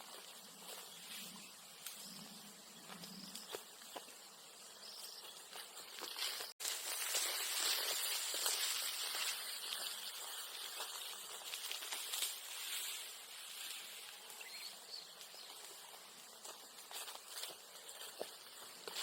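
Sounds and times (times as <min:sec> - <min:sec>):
high hiss of insects: 0:00.0 - 0:19.0
light ticks and crackles: 0:01.8 - 0:02.2, 0:05.4 - 0:19.0.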